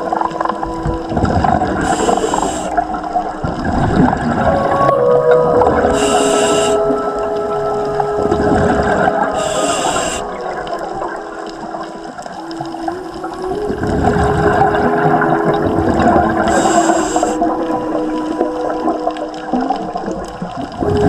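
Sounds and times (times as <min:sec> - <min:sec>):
gurgling exhaled bubbles: 0:00.0 - 0:21.0
regulator hissing inhale: 0:01.8 - 0:02.8, 0:05.9 - 0:06.8, 0:09.4 - 0:10.4, 0:16.5 - 0:17.4.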